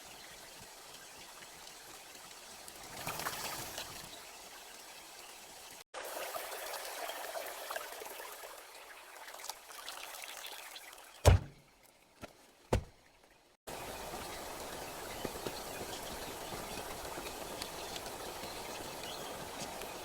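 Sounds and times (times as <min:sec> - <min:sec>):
water trickling and pouring: 0:00.0 - 0:20.0
dull thumps: 0:11.2 - 0:11.6, 0:12.7 - 0:13.0.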